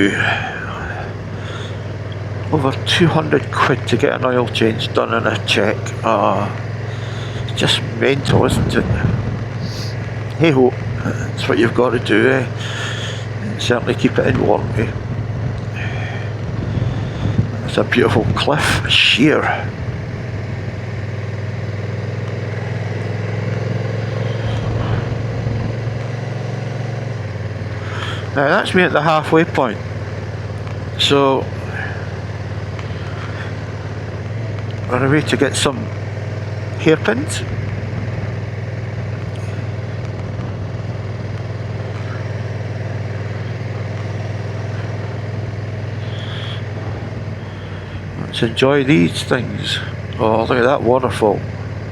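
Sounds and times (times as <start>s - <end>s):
motorcycle engine running: 0.0s - 51.9s
road and wind noise: 0.0s - 51.9s
wind noise: 8.2s - 10.0s, 14.4s - 18.5s.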